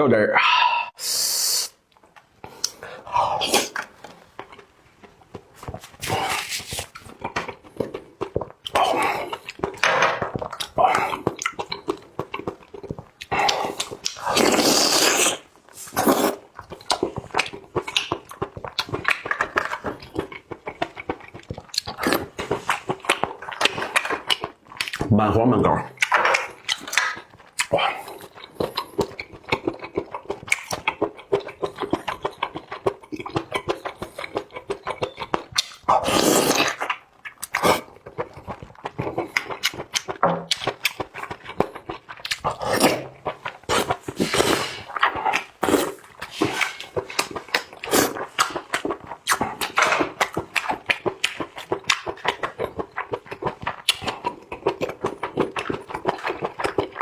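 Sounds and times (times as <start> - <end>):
slurping: 0.4 - 1.8, 2.4 - 4.7, 5.4 - 25.0, 26.0 - 57.0
lip-smacking: 1.3 - 4.7, 26.0 - 57.0
wet chewing: 1.9 - 25.1, 25.9 - 57.0.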